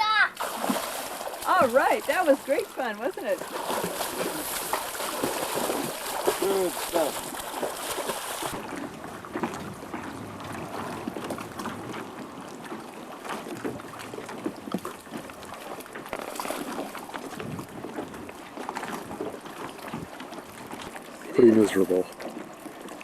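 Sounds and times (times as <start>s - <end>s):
water splashing and lapping: 0.0s - 23.0s
wind on microphone: 8.4s - 15.7s, 16.5s - 21.0s.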